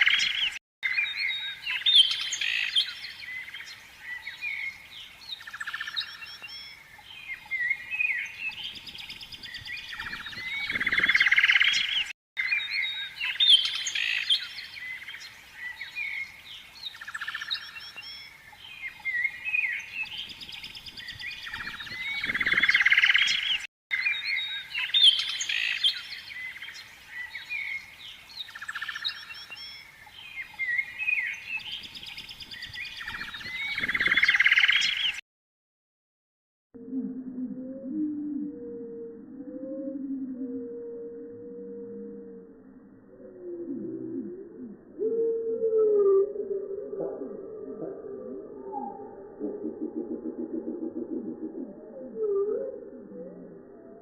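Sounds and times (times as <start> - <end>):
small birds chirping and trilling: 0.0 - 35.2.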